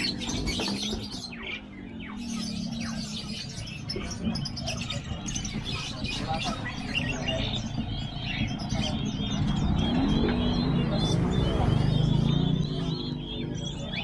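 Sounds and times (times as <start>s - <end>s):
many birds chirping: 0.0s - 14.0s.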